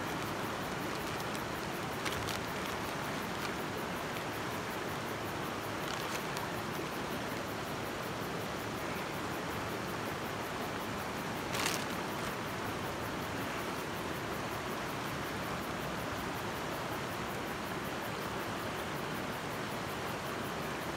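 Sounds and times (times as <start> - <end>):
creek water running: 0.0 - 7.8.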